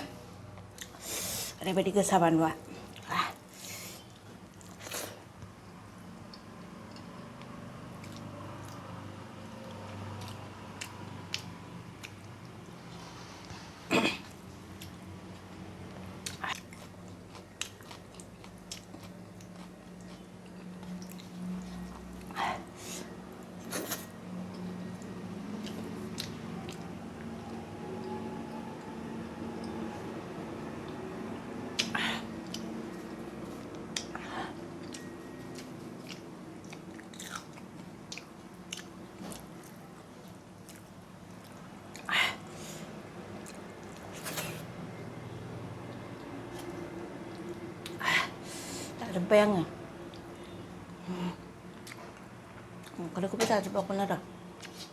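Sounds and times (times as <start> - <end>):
person chewing food: 6.3 - 8.8, 9.7 - 12.7, 14.2 - 27.6, 31.8 - 42.2, 50.1 - 53.0
chewing and biting: 16.0 - 22.4, 34.8 - 39.8.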